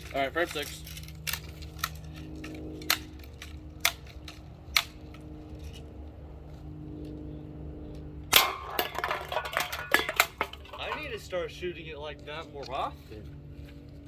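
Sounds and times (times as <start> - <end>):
aluminium cans clattering: 8.3 - 11.2.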